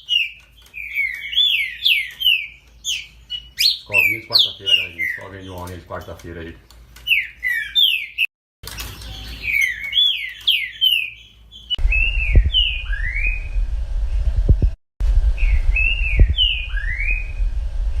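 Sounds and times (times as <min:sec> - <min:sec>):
bird whistled song: 0:00.0 - 0:05.6, 0:07.1 - 0:13.6, 0:15.4 - 0:17.5
low rumble: 0:11.8 - 0:18.0.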